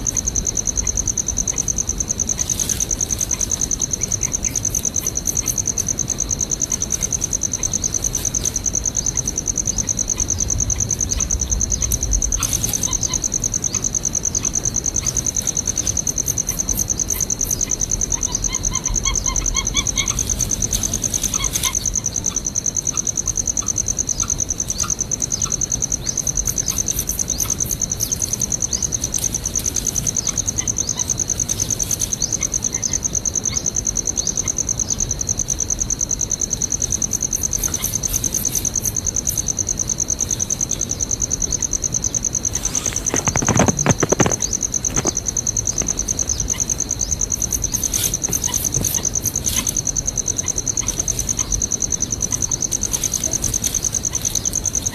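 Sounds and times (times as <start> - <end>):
insects droning: 0.0 - 54.9
loud rustling: 42.4 - 46.5.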